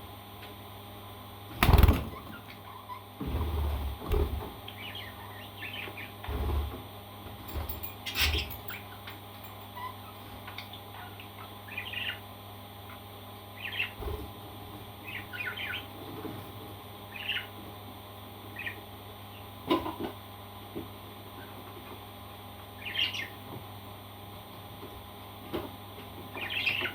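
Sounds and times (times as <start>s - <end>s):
parrot chirping and squawking: 9.8s - 12.2s, 15.0s - 15.9s, 22.8s - 23.4s, 26.4s - 26.9s.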